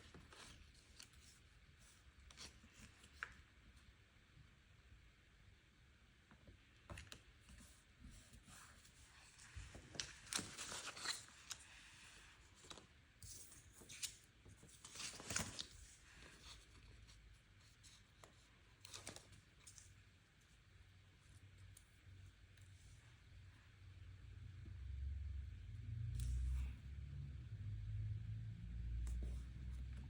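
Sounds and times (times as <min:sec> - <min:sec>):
paper rustling: 0:07.0 - 0:20.1.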